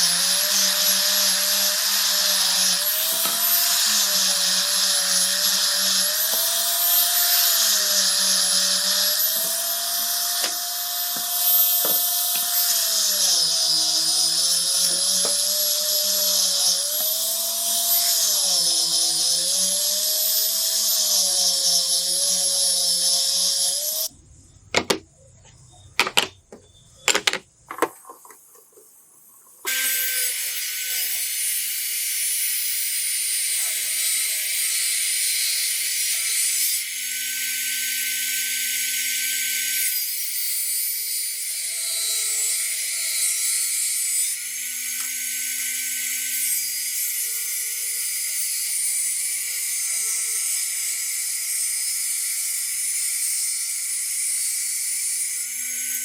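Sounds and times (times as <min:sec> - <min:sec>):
power tool whining: 0:00.0 - 0:24.1, 0:24.8 - 0:25.0, 0:26.0 - 0:40.6.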